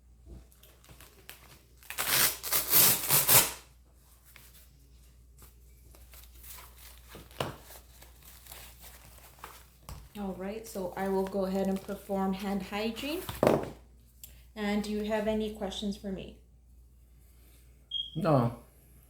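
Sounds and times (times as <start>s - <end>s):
velcro fastener ripping open: 0.6s - 3.7s.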